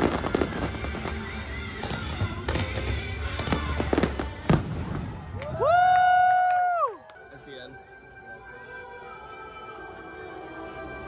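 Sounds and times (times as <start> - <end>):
music playing: 0.0 - 5.5, 6.9 - 11.0
fireworks bangs: 0.0 - 5.7.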